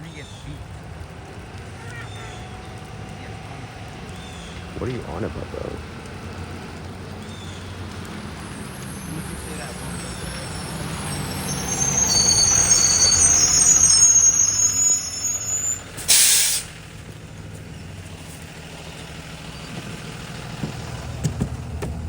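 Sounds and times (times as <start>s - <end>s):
bus engine hum: 0.2s - 22.0s
brake squeal: 1.6s - 22.0s
air brake hiss: 10.8s - 16.8s.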